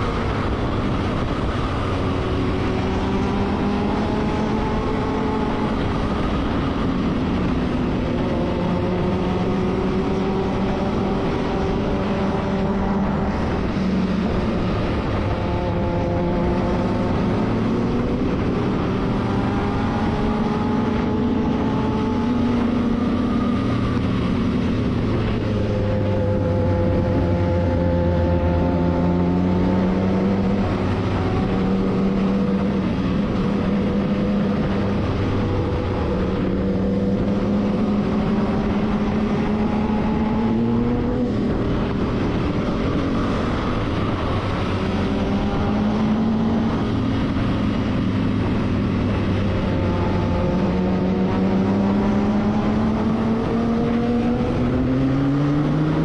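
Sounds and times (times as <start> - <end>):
road and wind noise: 0.0 - 56.0
vehicle engine running: 0.0 - 56.0.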